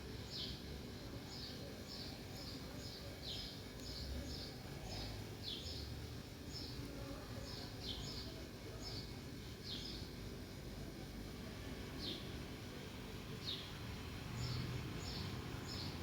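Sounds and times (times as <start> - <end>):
sparrows chirping: 0.2 - 0.6, 1.3 - 10.2, 12.0 - 12.4, 13.3 - 16.0.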